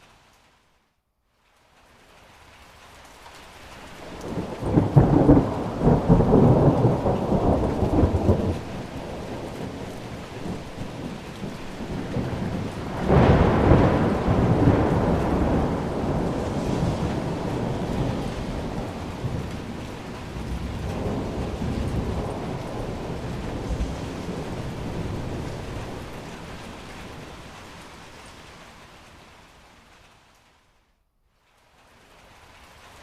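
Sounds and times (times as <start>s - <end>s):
steady rain: 0.0s - 33.0s
thunder rumbling: 4.0s - 28.5s.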